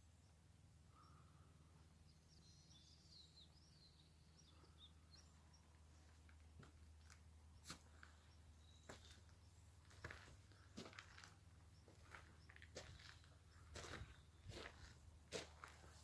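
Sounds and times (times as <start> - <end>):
faint bird chirps: 0.0 - 6.2.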